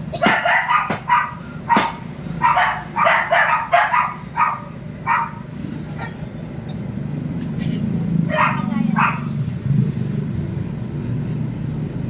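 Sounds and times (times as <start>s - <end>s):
short high yelping calls: 0.2s - 5.5s, 8.3s - 9.4s.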